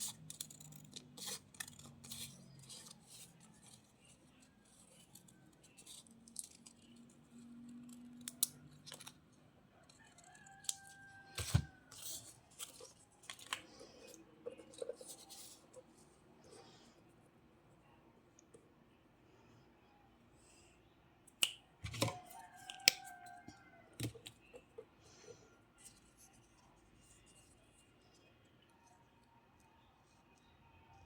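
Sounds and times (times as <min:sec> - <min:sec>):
scissors snipping paper: 0:00.0 - 0:03.9.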